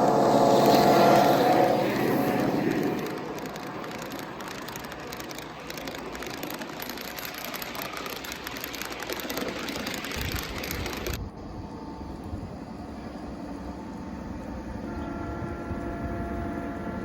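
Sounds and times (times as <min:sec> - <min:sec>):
model train motor whirring: 0:00.0 - 0:11.2.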